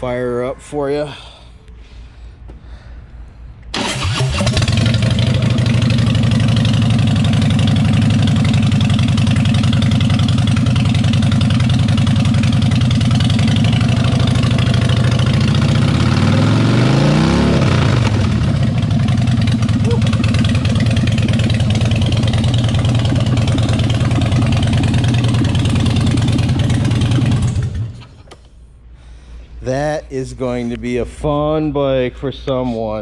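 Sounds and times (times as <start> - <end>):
starter cranking: 3.8 - 6.8
motorcycle engine idling and revving: 3.8 - 28.2.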